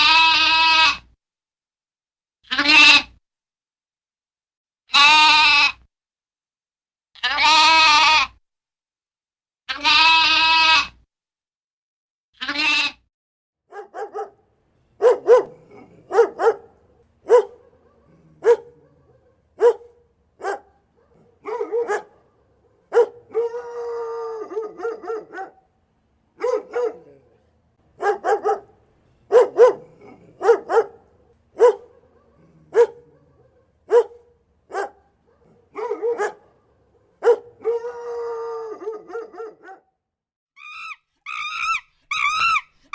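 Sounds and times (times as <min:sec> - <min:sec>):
animal calls: 0:40.6 - 0:42.9.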